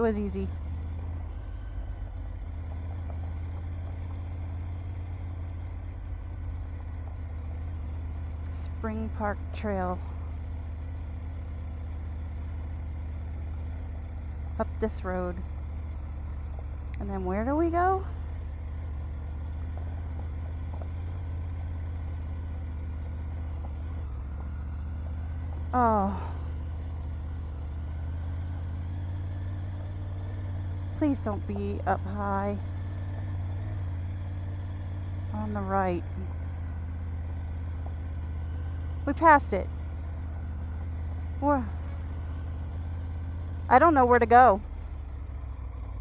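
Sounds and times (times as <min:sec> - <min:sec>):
motorcycle engine idling: 0:00.0 - 0:46.0.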